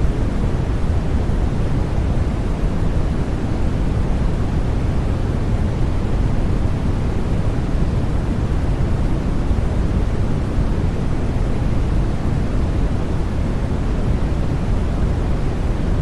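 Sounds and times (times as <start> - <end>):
steady white noise: 0.0 - 16.0.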